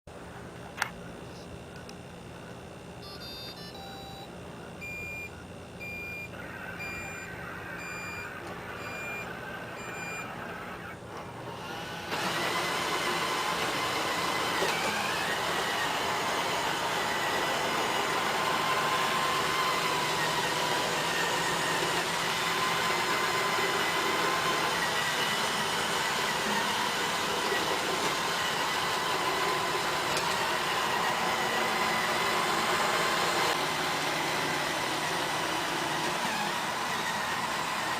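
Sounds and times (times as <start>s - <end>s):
vacuum motor whine: 0.2s - 37.9s
robot vacuum beeps: 3.0s - 11.0s.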